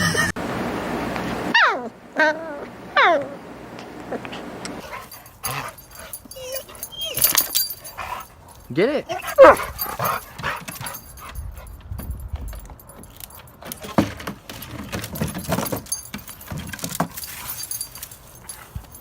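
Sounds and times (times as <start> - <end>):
dog collar tags jingling: 4.8 - 19.0.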